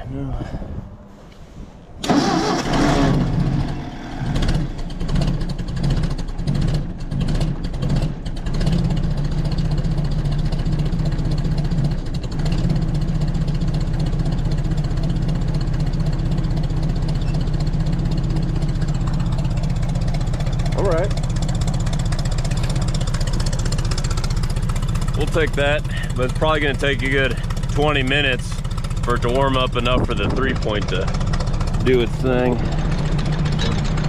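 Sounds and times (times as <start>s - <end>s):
tractor engine idling: 0.0s - 34.0s.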